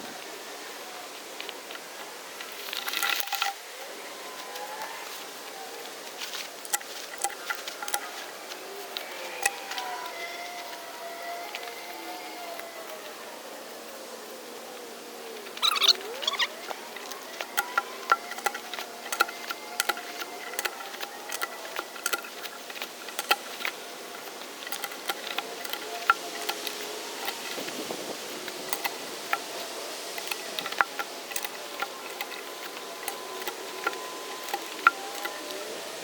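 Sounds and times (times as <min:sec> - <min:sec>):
sharp clicks and ticks: 0:15.6 - 0:35.7.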